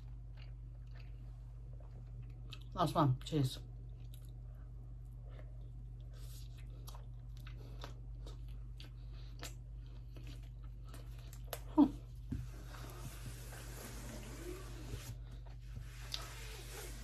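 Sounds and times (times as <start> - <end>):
chewing food: 0.0 - 2.8, 3.8 - 11.7.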